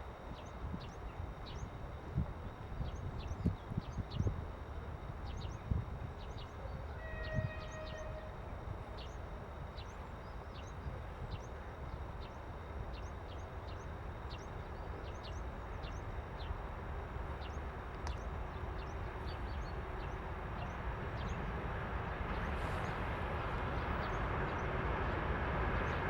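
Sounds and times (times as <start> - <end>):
distant freight train rumble: 0.0 - 26.0
short horn-like tone: 6.6 - 9.1.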